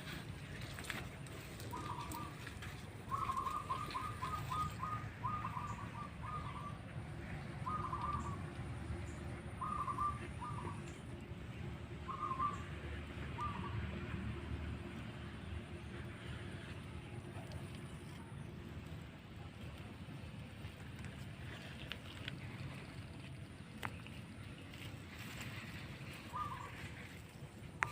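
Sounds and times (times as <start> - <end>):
bird calling in quick notes: 1.6 - 6.8, 7.6 - 8.4, 26.1 - 27.1.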